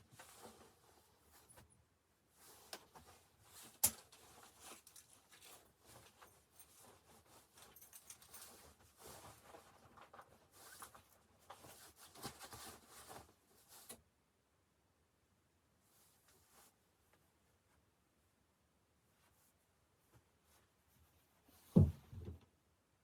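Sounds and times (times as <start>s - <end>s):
rustling with light clicks: 0.0s - 14.1s.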